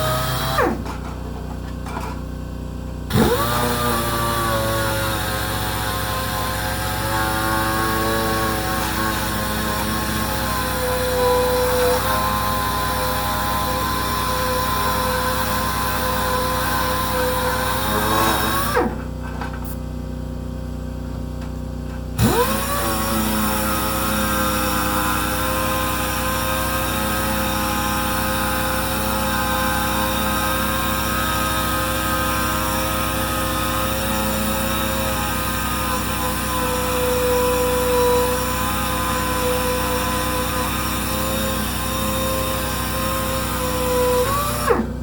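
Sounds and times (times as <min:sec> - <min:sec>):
power sander running: 0:00.0 - 0:02.0, 0:03.0 - 0:19.7, 0:21.9 - 0:45.0.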